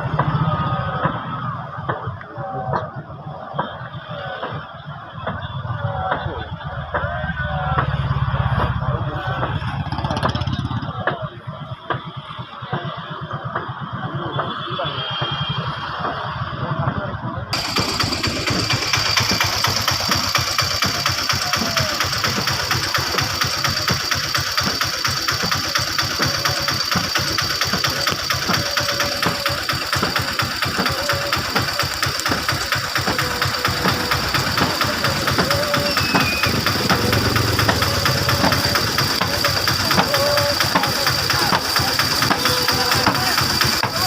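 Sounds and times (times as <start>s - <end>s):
motorboat engine running: 7.7s - 11.1s, 17.6s - 44.0s.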